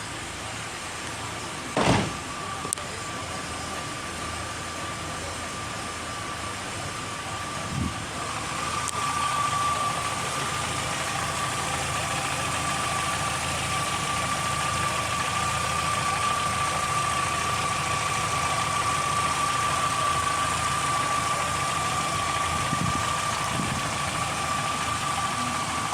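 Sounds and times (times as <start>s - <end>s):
car engine idling: 0.0s - 25.9s
high whine: 0.0s - 25.9s
brief knock: 1.8s - 2.2s.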